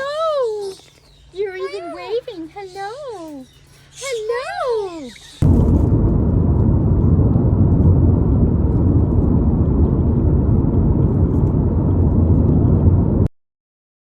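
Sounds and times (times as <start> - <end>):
low rumble: 5.4 - 13.3.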